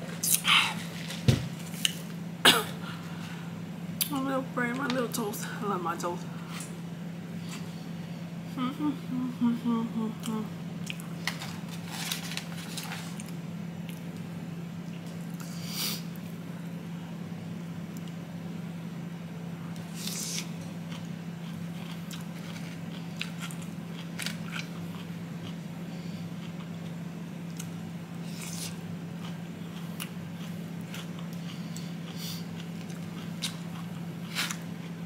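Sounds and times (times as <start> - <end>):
steady low hum: 0.0 - 35.0
moist chewing with crunches: 19.9 - 25.6, 26.4 - 35.0.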